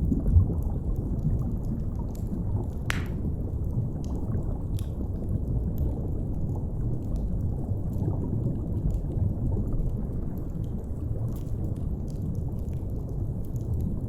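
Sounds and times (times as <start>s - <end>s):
faint fire crackles: 0.0s - 14.0s.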